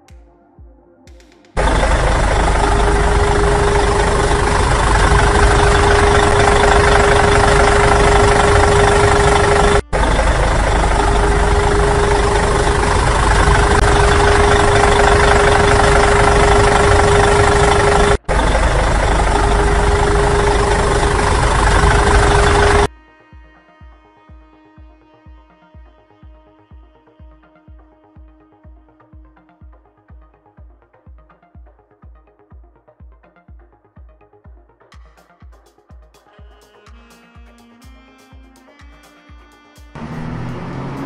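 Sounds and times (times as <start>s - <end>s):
constant hum: 1.6s - 22.9s
vehicle engine running: 1.6s - 22.9s, 40.0s - 41.0s.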